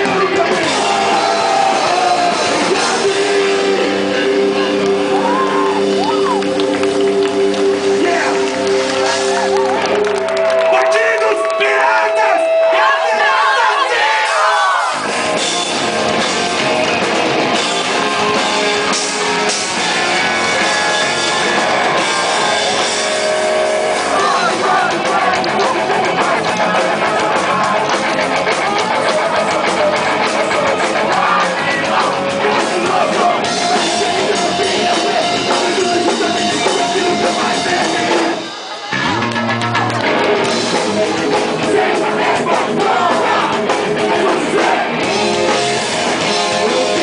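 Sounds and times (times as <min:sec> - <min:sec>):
person singing: 0:00.0 - 0:06.6, 0:24.0 - 0:44.9, 0:46.2 - 0:47.0
drum kit: 0:00.0 - 0:10.7, 0:14.2 - 0:47.0
distorted electric guitars: 0:00.0 - 0:47.0.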